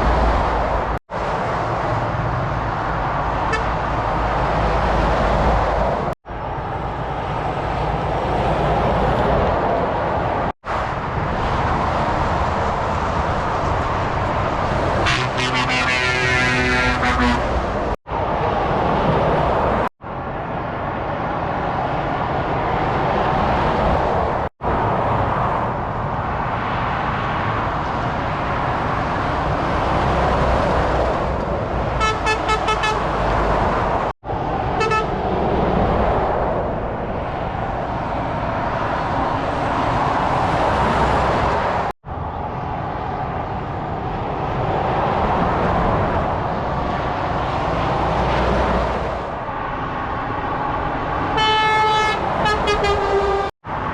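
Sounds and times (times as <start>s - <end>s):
heavy motorway traffic: 0.0s - 53.9s
vehicle horn toots: 3.5s - 3.8s, 15.0s - 17.5s, 32.0s - 33.1s, 34.8s - 35.1s, 51.4s - 53.5s.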